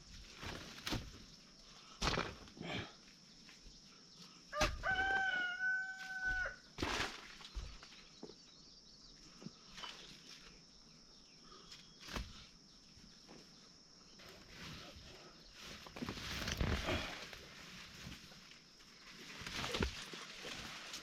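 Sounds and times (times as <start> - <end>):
rooster crowing: 4.5 - 6.6.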